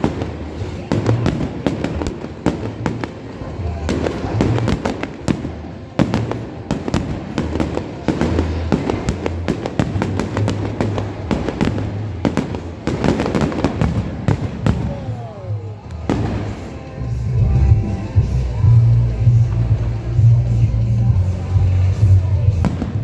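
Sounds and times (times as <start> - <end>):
fireworks bangs and crackles: 0.0 - 23.0
music with pulsing bass beat: 16.1 - 23.0.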